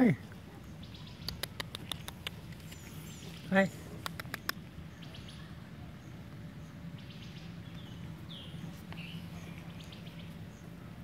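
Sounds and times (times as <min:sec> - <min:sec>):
steady low hum: 0:00.0 - 0:11.0
sharp clicks: 0:04.0 - 0:04.6.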